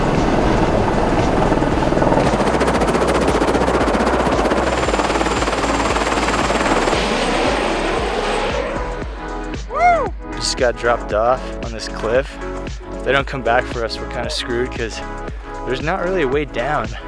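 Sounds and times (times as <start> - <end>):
helicopter engine rushing: 0.0 - 8.9
helicopter rotor chopping: 0.0 - 8.9, 10.6 - 17.0.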